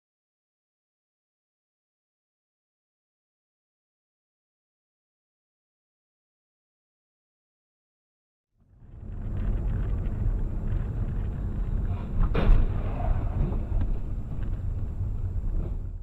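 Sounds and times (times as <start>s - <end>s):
car driving rumble: 8.7s - 16.0s.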